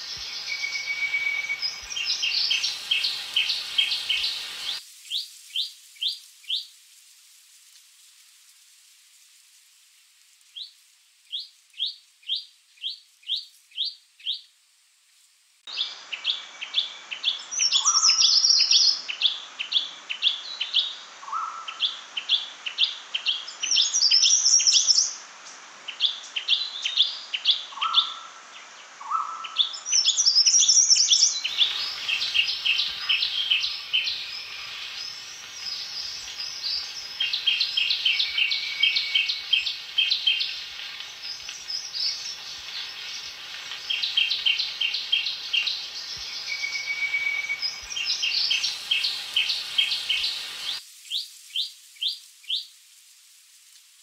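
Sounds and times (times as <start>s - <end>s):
bird song with rising notes: 0.0s - 4.8s, 31.0s - 40.5s, 41.6s - 50.8s
bird trills: 0.0s - 4.8s, 31.4s - 40.6s, 41.8s - 50.8s
steady background hiss: 0.0s - 54.0s.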